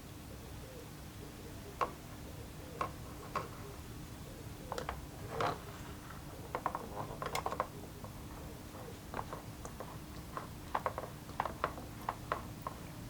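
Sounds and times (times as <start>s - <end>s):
faint steady hum: 0.0s - 13.0s
metal parts clicking and tapping: 9.1s - 12.8s.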